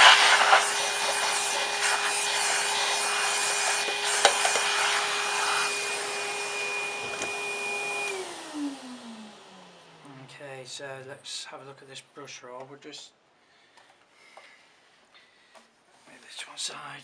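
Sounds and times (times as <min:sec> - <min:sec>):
rushing hissing airflow: 0:00.0 - 0:06.6
electric motor winding down: 0:00.0 - 0:10.1.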